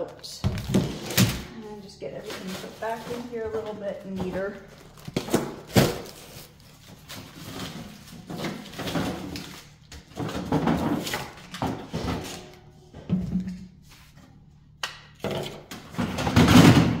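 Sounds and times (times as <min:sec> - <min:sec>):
packages rustling and scraping: 0:00.6 - 0:12.6.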